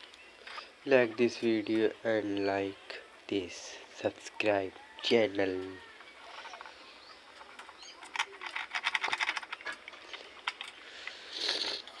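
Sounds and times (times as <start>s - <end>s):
short hiss: 10.8s - 11.9s.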